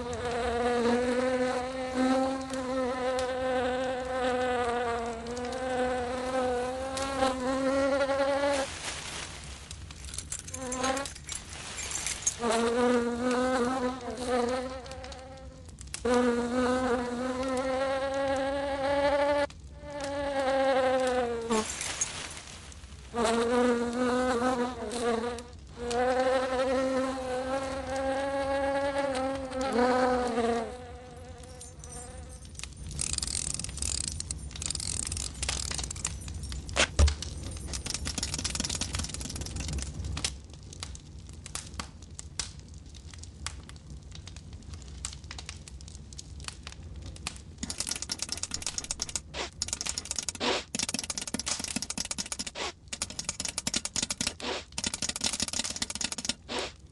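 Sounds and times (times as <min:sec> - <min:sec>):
crackles and small ticks: 0:00.0 - 0:56.9
cartoon insect buzzing: 0:10.5 - 0:11.0, 0:50.3 - 0:50.7, 0:54.2 - 0:54.8, 0:55.9 - 0:56.8.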